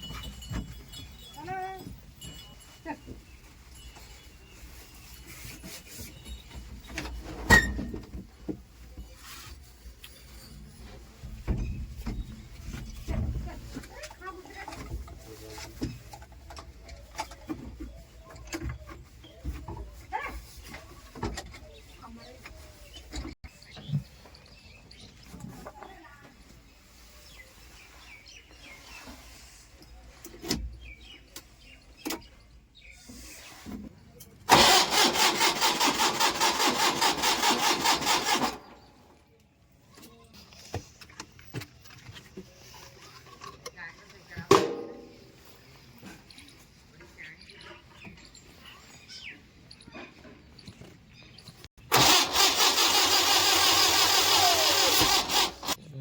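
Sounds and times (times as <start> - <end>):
small birds chirping: 0.0 - 7.7, 8.7 - 34.5, 45.1 - 51.9
loud steady engine: 34.5 - 38.7, 51.9 - 55.8.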